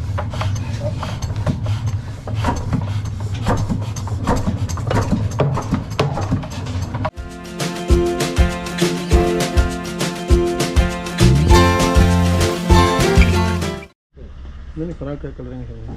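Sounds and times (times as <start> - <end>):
engine knocks and clatter: 0.0 - 7.1
music: 7.1 - 14.0.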